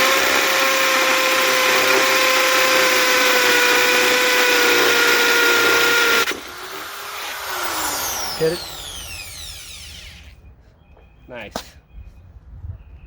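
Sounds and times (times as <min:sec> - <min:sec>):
hammer drill into block: 0:00.0 - 0:10.3.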